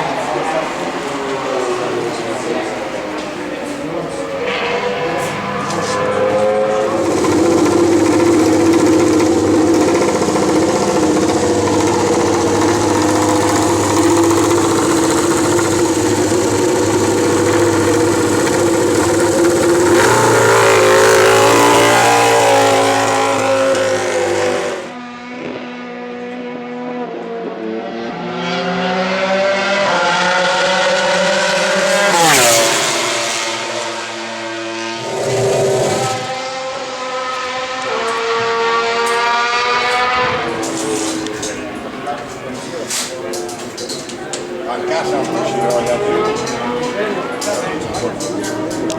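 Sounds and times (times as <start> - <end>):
motorcycle engine revving loud: 0.2 - 27.5, 28.2 - 41.9, 44.4 - 48.9.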